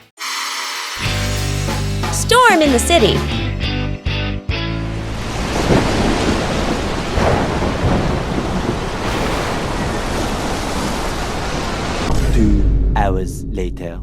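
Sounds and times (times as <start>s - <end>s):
heavy rain: 5.0s - 12.1s
thunder rumbling: 5.2s - 13.0s.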